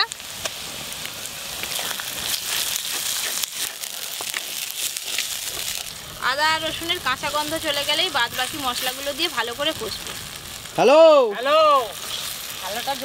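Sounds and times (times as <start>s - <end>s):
paste sizzling in hot oil: 0.0s - 13.0s
wooden spatula scraping a pot: 1.6s - 5.9s.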